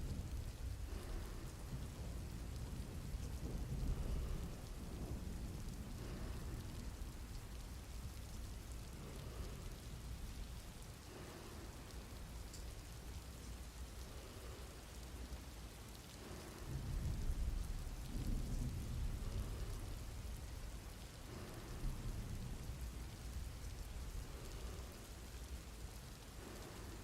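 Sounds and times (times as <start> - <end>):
low rumble of thunder: 0.0 - 27.0
steady rain: 0.0 - 27.0.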